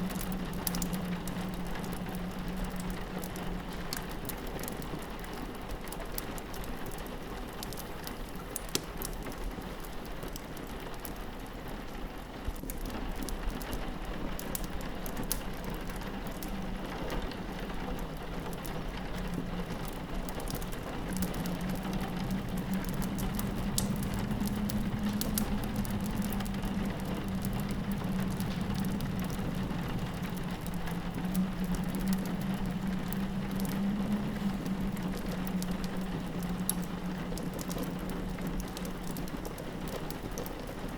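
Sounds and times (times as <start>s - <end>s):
rain pattering on a window: 0.0s - 40.9s
wood fire crackling: 0.0s - 40.9s
wind howling: 15.6s - 40.9s.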